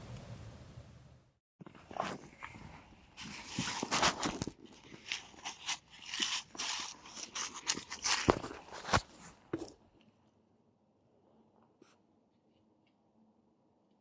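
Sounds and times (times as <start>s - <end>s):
crunching and crackling: 1.6s - 10.1s.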